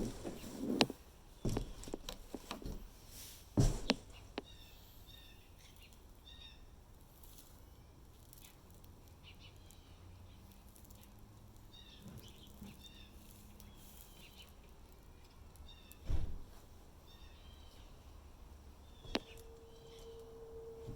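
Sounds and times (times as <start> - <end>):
birds chirping: 0.0 - 2.9, 9.2 - 16.1, 17.0 - 20.9
low steady hum: 0.0 - 5.9, 15.1 - 20.9.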